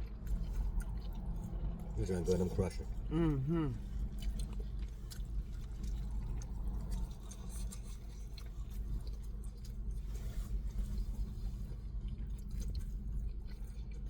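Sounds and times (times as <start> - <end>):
low hum: 0.0 - 4.5
person chewing crunchy food: 0.0 - 14.0.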